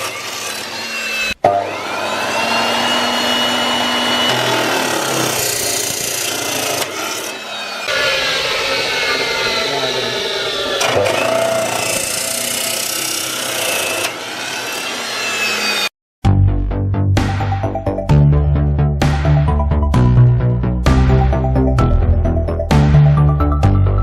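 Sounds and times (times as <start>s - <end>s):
electric saw cutting material: 0.0s - 15.9s.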